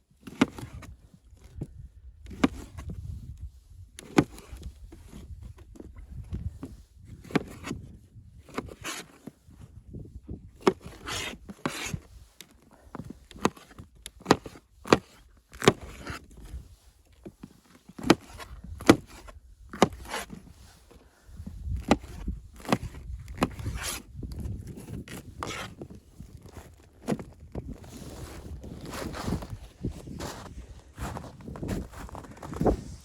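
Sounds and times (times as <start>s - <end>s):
scraping and rubbing: 26.6s - 33.0s.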